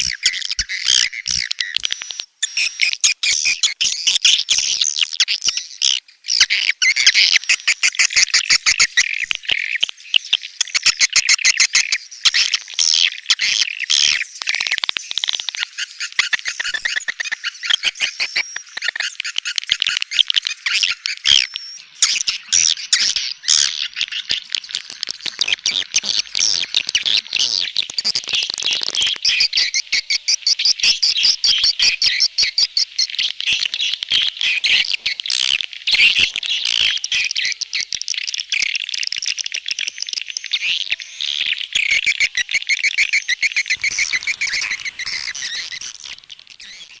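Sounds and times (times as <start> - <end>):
swiftlet chirps and twitters: 15.8 - 47.0.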